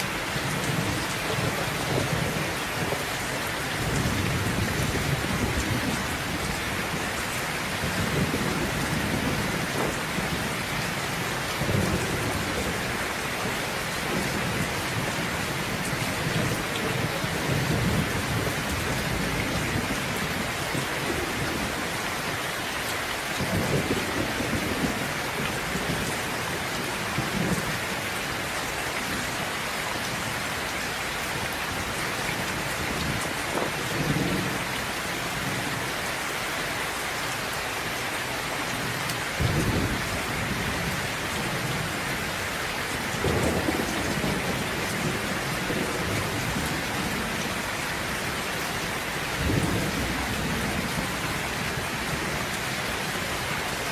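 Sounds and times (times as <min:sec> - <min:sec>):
steady rain: 0:00.0 - 0:53.9
thunder rumbling: 0:03.8 - 0:21.9, 0:43.0 - 0:48.6.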